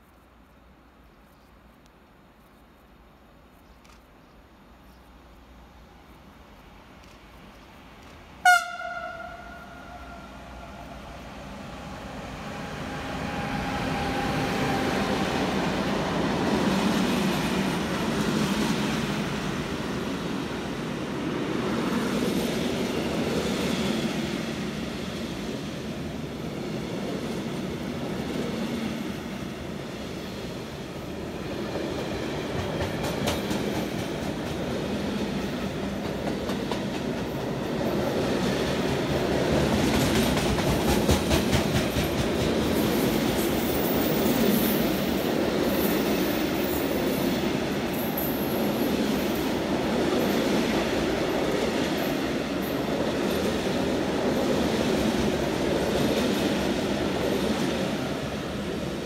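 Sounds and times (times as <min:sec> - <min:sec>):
train passing on rails: 0:02.1 - 0:59.0
train horn blast: 0:08.4 - 0:10.8.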